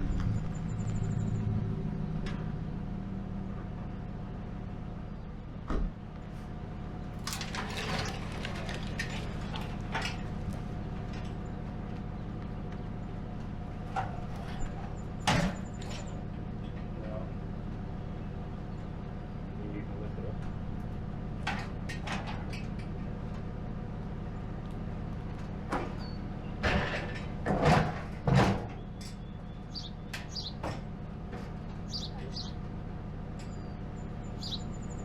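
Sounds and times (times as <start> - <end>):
low mechanical hum: 0.0 - 35.0
knocks and clatters: 7.2 - 11.4, 21.4 - 23.5, 25.2 - 31.8.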